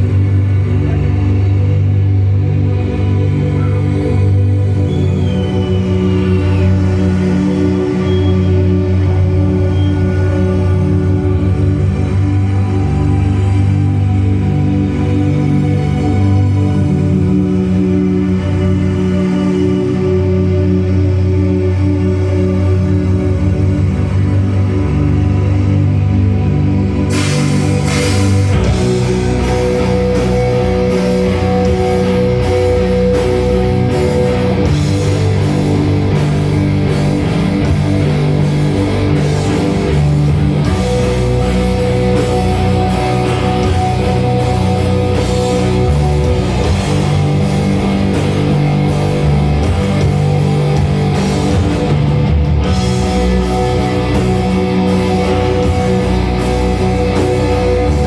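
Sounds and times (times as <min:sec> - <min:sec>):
distorted electric guitars: 0:00.0 - 0:58.0
drums and cymbals: 0:27.1 - 0:58.0.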